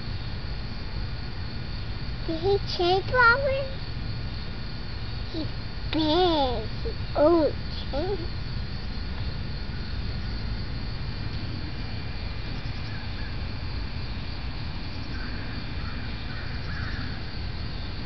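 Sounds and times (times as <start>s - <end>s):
faint bird calls: 14.9s - 17.3s.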